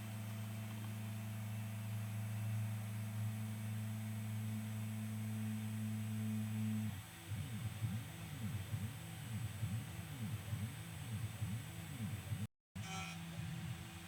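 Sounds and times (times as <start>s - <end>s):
stepper motor humming: 4.3s - 12.5s.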